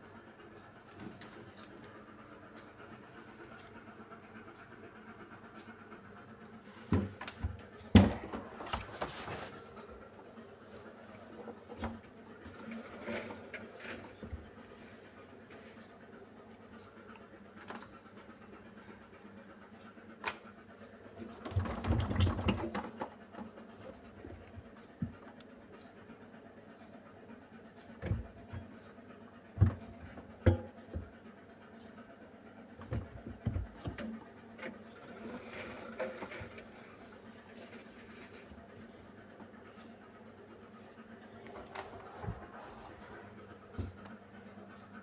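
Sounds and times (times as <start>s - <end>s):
washing machine humming: 0.0s - 45.0s
washing machine thumps and knocks: 7.9s - 8.8s, 29.6s - 31.1s.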